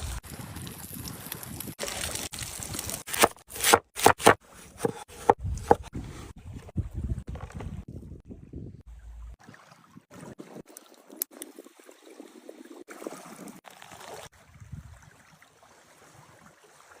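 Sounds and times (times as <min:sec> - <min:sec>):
water trickling and splashing: 0:00.0 - 0:03.6, 0:08.8 - 0:17.0.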